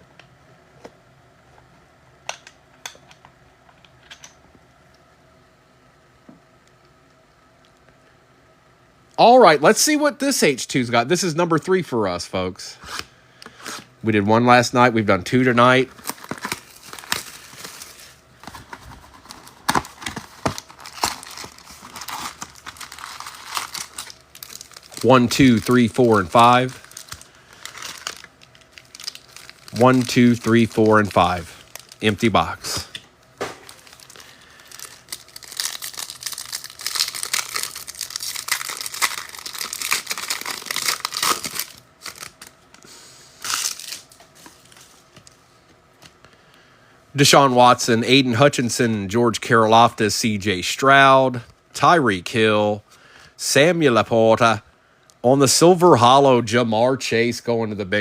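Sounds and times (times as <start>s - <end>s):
plastic wrapping crinkling: 15.7s - 42.6s, 43.4s - 45.4s
cardboard rustling: 15.9s - 28.2s.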